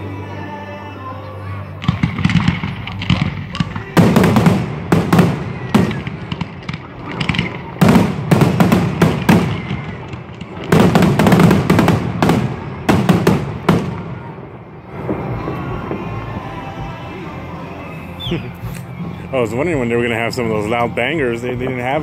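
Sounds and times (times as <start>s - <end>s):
fireworks bangers bursting: 1.8s - 17.0s.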